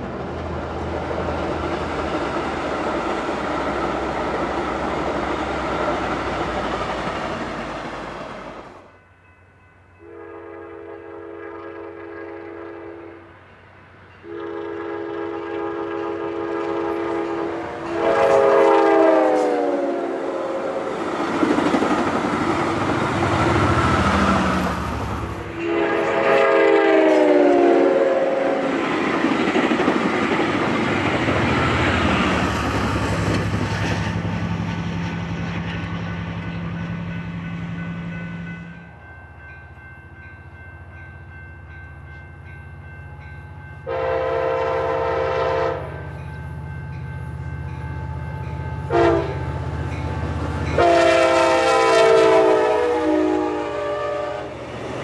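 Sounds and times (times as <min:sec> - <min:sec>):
train rumble and wheel clatter: 0:00.0 - 0:55.0
train horn blasts: 0:10.0 - 0:13.4, 0:14.2 - 0:21.0, 0:23.2 - 0:29.0, 0:43.8 - 0:46.6, 0:47.4 - 0:54.7.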